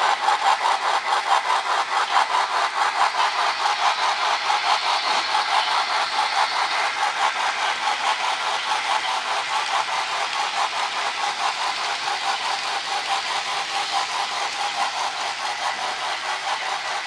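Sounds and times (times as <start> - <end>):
model train clatter and hum: 0.0 - 17.0.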